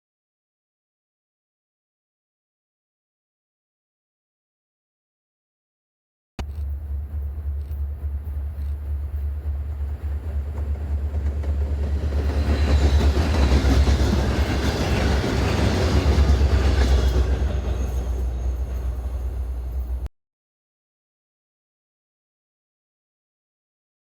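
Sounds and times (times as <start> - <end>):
wheels rushing on rails: 6.4 - 20.1
freight train rolling past: 6.5 - 20.1.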